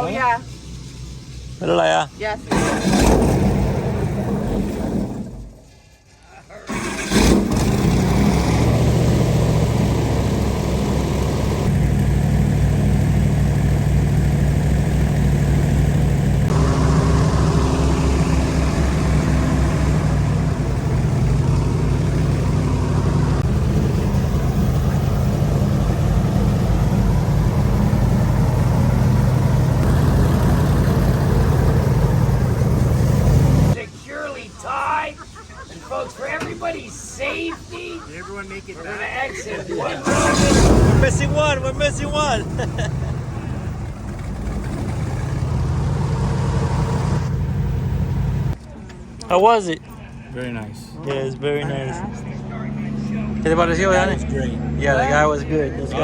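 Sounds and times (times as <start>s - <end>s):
airboat engine and propeller drone: 6.8s - 33.8s.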